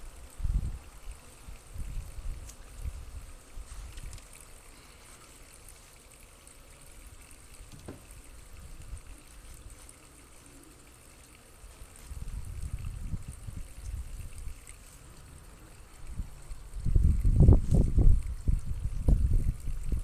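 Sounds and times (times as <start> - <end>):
wind buffeting microphone: 0.0 - 0.9, 1.5 - 4.1, 12.1 - 14.6, 16.0 - 20.0
faint steady hiss: 0.0 - 20.0.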